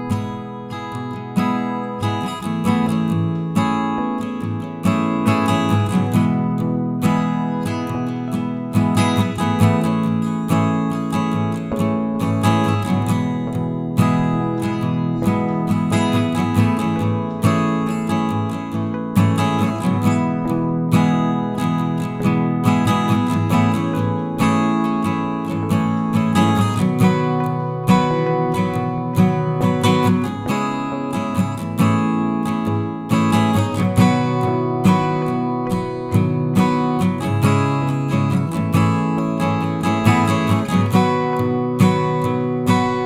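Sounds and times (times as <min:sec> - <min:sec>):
acoustic guitar strumming: 0:00.0 - 0:43.0.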